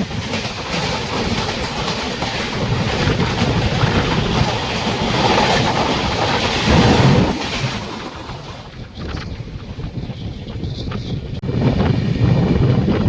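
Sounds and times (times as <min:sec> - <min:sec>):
train wheels clattering over rails: 0:00.0 - 0:09.1.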